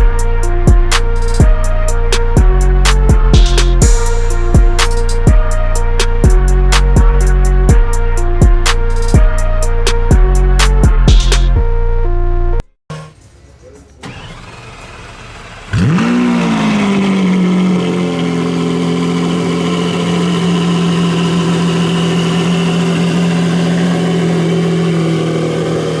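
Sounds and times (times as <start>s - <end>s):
car engine revving and idling: 0.0s - 11.6s, 13.9s - 26.0s
engine cranking: 13.8s - 25.9s.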